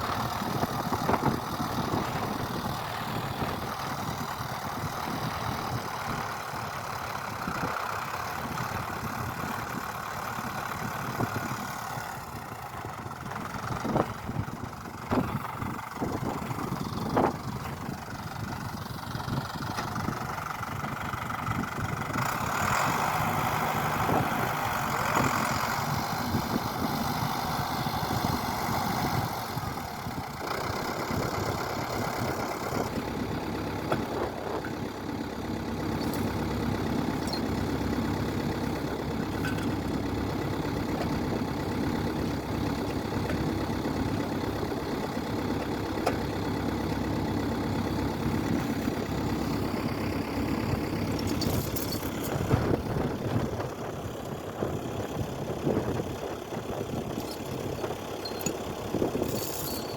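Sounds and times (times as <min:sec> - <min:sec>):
small engine running: 0:21.5 - 0:59.9.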